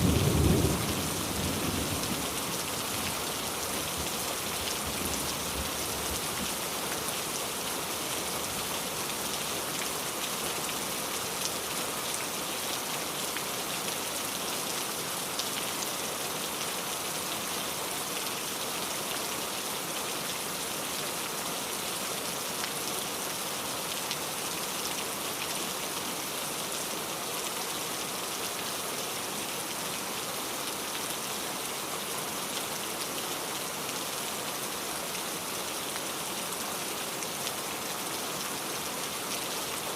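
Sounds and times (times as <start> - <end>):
rain pattering: 0.0 - 14.0.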